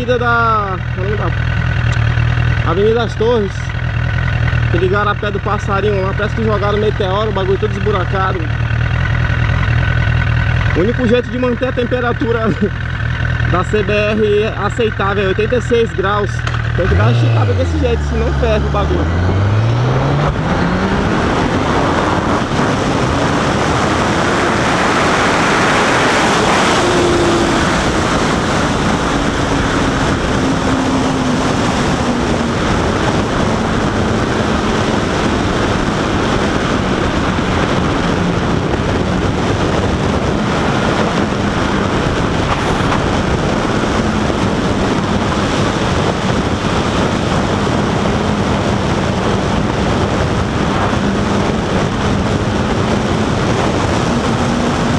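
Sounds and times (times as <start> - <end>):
motorcycle engine accelerating: 0.0 - 54.9
wind rush on microphone: 13.8 - 54.9.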